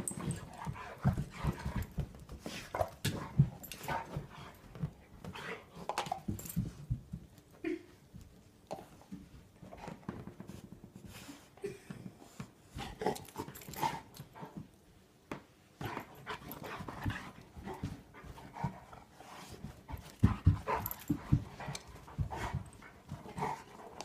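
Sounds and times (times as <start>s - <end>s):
dog panting and sniffing: 0.0s - 6.8s, 15.8s - 24.0s.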